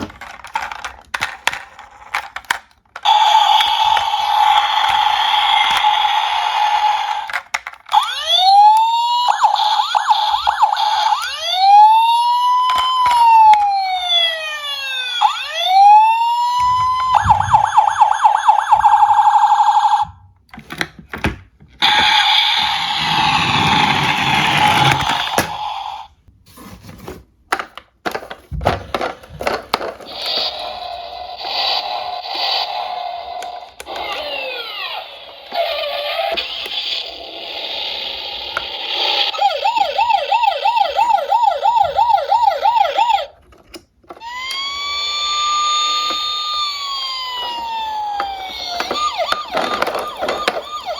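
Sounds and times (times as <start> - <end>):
electronic police siren: 3.0 - 7.3, 7.9 - 20.2, 21.8 - 26.1, 39.0 - 43.4, 44.2 - 50.9.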